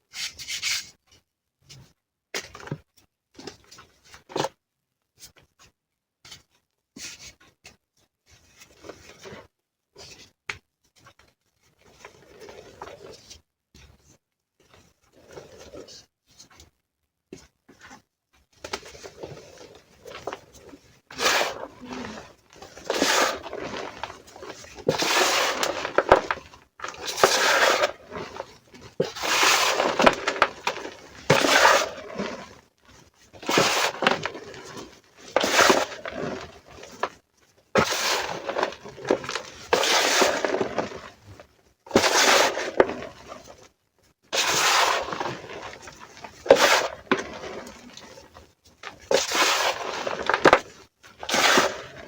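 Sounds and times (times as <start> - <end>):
chalk crunching and crumbling: 18.7 - 37.2, 37.8 - 43.7, 44.4 - 52.0.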